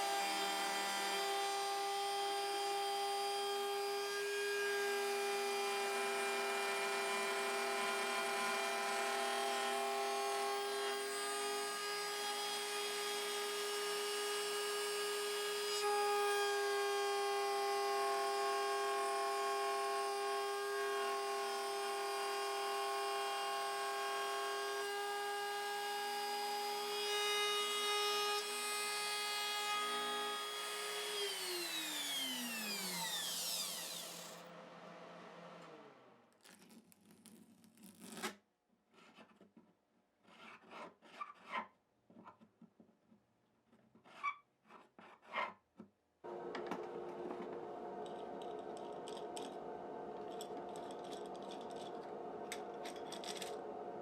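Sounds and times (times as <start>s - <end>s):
trim router whining: 28.2s - 34.9s, 46.3s - 54.0s.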